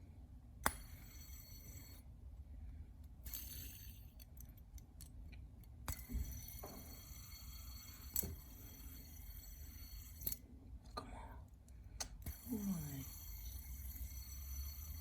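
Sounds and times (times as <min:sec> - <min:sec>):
fidget spinner clicks and taps: 0:00.6 - 0:01.4.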